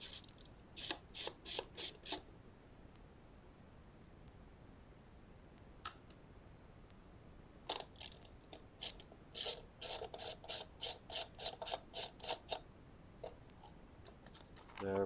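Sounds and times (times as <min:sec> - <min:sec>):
ratchet wrench clicking: 0:08.0 - 0:08.2, 0:08.8 - 0:12.6.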